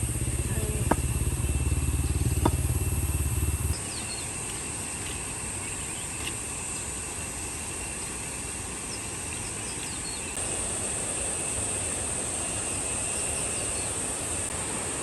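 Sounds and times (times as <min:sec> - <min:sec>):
small motorcycle engine idling: 0:00.0 - 0:04.5
steady high hiss: 0:00.0 - 0:15.0.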